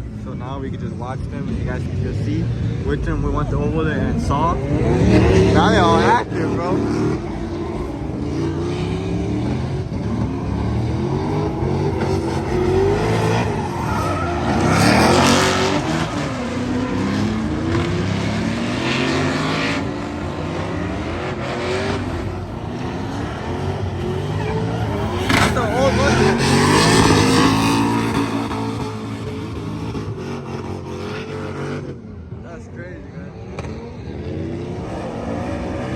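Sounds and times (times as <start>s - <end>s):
car engines revving: 0.0s - 35.9s
tyres screeching: 10.7s - 17.7s, 21.2s - 29.1s.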